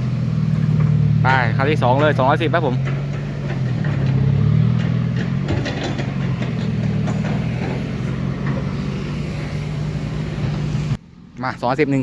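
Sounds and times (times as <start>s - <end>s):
diesel engine running at low revs: 0.0s - 12.0s
light clatter: 1.7s - 8.9s.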